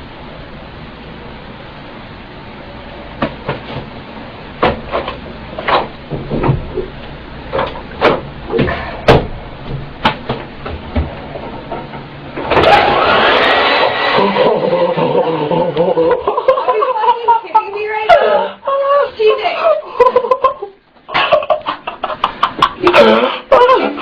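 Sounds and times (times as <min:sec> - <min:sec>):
sharp knocks and clicks: 0:07.5 - 0:12.6
hair dryer blowing: 0:12.5 - 0:15.3.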